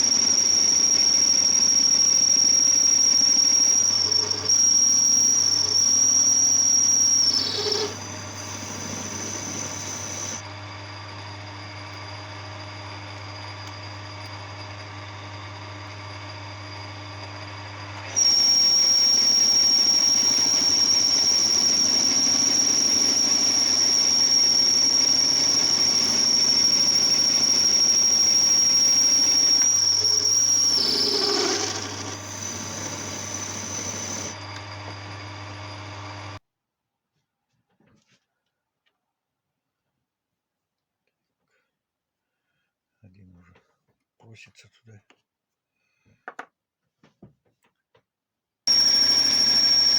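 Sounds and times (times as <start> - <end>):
power tool high-pitched whine: 0.0 - 36.4, 48.7 - 49.9.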